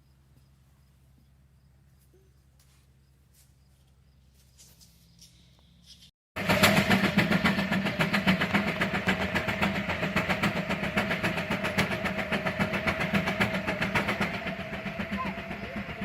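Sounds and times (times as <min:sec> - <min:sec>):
tractor engine running: 0:06.4 - 0:16.0.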